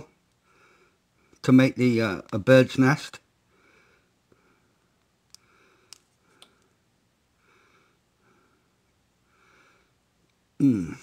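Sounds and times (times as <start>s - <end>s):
faint breathing: 0.3s - 1.4s, 3.4s - 10.0s.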